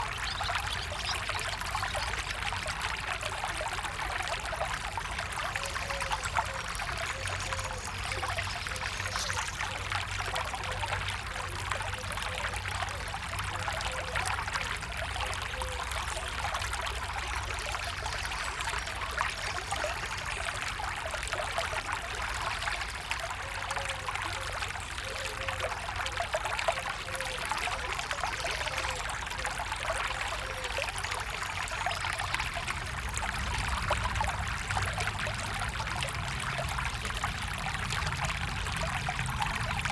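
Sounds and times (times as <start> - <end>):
stream of water trickling: 0.0 - 39.9
water gurgles: 0.0 - 39.9.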